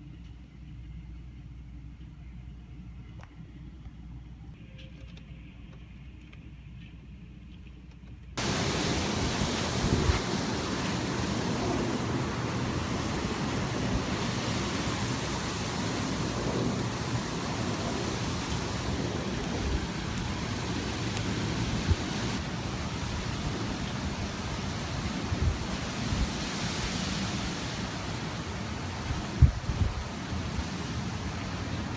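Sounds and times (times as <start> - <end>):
strong gusty wind: 8.4 - 31.9.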